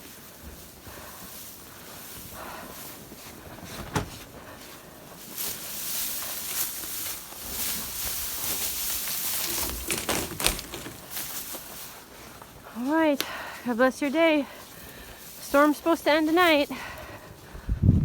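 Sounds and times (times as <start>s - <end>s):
footsteps in deep snow: 0.0s - 18.0s.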